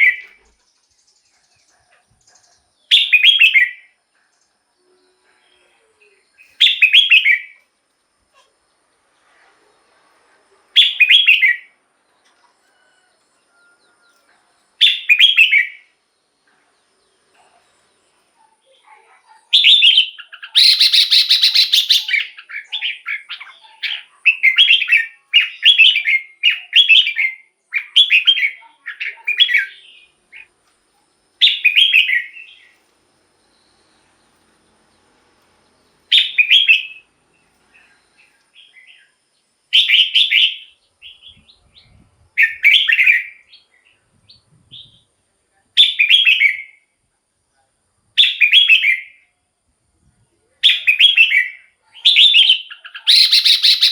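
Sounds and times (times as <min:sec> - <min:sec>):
bulbul singing warbled phrases: 0:04.9 - 0:07.6, 0:10.8 - 0:11.8, 0:17.6 - 0:30.5, 0:50.6 - 0:53.9.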